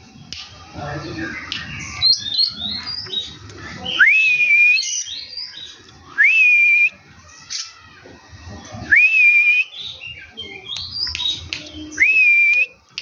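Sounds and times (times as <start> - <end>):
songbird chirping and whistling: 1.4 - 7.6, 8.9 - 12.8.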